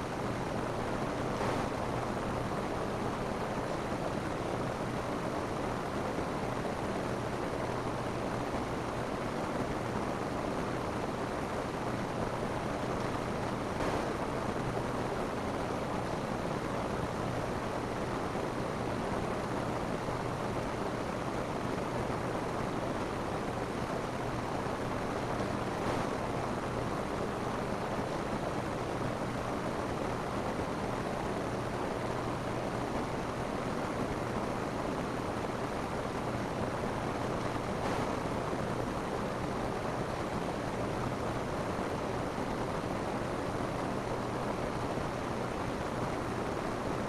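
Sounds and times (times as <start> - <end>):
rain on a roof: 0.0 - 47.0.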